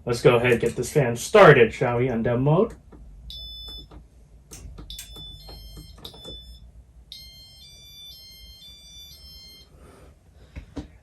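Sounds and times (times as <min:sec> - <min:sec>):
stepping run of tones: 0:02.7 - 0:09.7.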